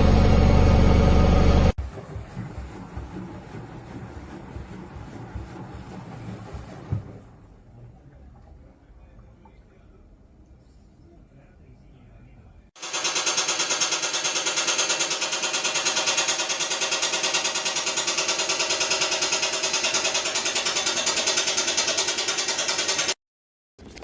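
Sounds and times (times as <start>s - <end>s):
washing machine running: 0.0s - 7.6s, 12.8s - 23.2s.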